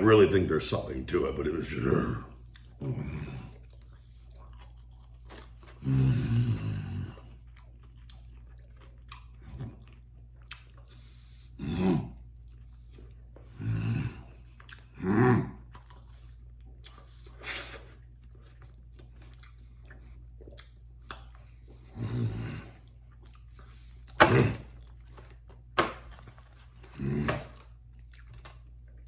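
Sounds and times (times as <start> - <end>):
open-mouthed chewing and lip-smacking: 1.7 - 29.0
low grunts: 1.9 - 3.6, 11.6 - 12.2, 13.5 - 15.7, 24.2 - 24.8, 26.8 - 27.6.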